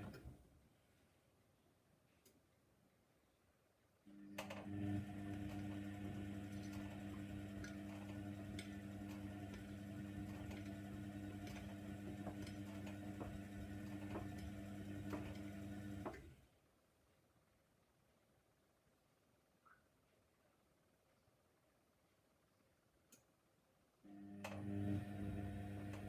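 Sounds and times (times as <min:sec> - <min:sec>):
washing machine motor hum: 0:00.0 - 0:00.4, 0:04.1 - 0:16.4, 0:24.1 - 0:26.0.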